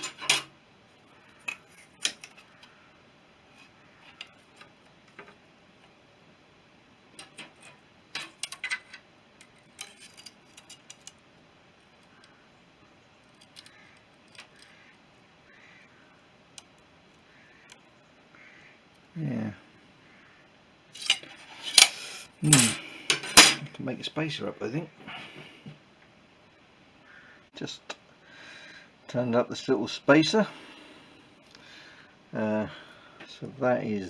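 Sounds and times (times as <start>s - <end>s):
metal parts clicking and clinking: 0.0s - 0.5s, 1.4s - 2.5s, 7.2s - 11.2s, 13.3s - 14.7s, 21.0s - 23.8s.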